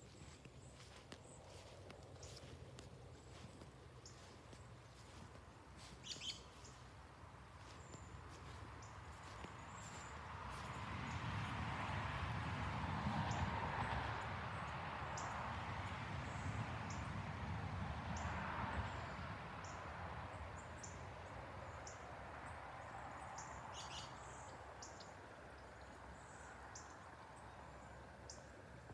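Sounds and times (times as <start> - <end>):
small birds chirping: 0.0 - 10.8.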